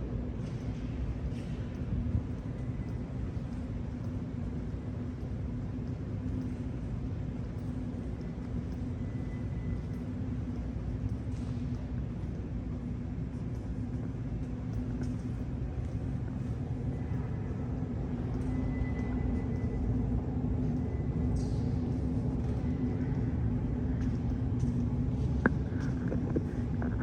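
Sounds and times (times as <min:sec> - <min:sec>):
low rumble with hum: 0:00.0 - 0:27.0.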